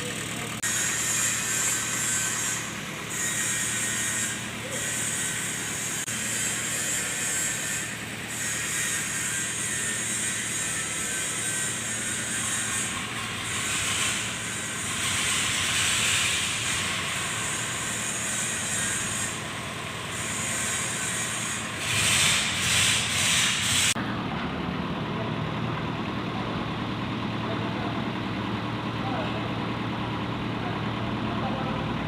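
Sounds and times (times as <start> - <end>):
diesel engine running: 0.0 - 32.0
loud rushing hiss: 20.2 - 24.0.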